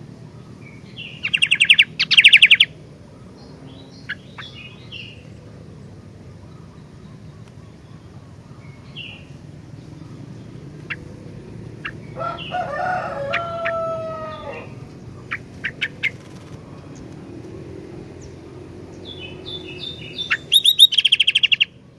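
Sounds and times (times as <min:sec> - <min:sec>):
bird chirping high and sharp: 0:01.0 - 0:02.8, 0:11.8 - 0:16.4, 0:18.2 - 0:21.8
rooster crowing: 0:11.8 - 0:15.4.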